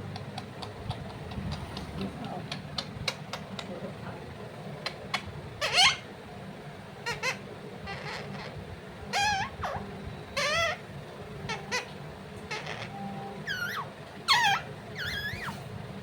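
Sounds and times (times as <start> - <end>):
parrot calling: 4.8 - 6.1, 7.0 - 15.7.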